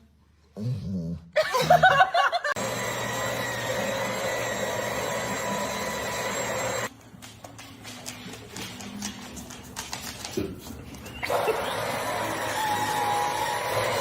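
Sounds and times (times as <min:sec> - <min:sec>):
electric motor whirring with whine: 0:02.6 - 0:06.9.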